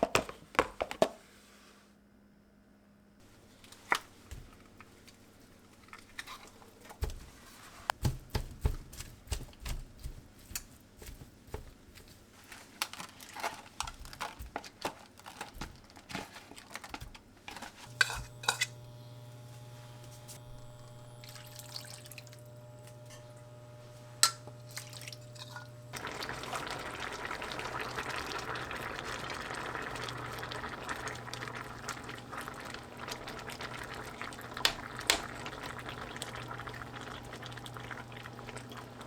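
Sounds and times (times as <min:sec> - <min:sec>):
water running from tap: 0:20.3 - 0:23.0, 0:24.2 - 0:39.0.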